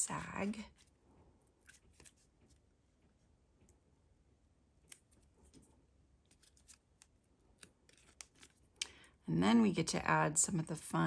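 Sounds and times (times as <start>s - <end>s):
faint paper ticks and rustles: 5.1s - 9.0s.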